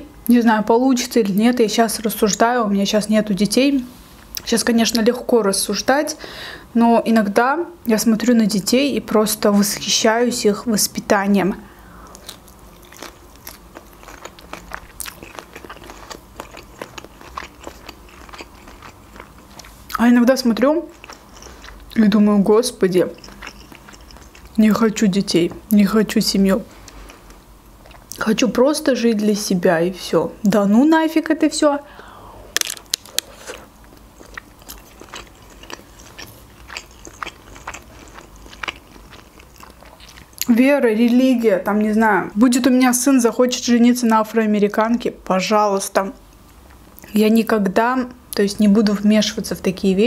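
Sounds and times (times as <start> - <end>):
person chewing crunchy food: 12.0 - 20.0, 20.8 - 22.1, 22.9 - 24.6, 26.8 - 28.2, 32.6 - 40.5.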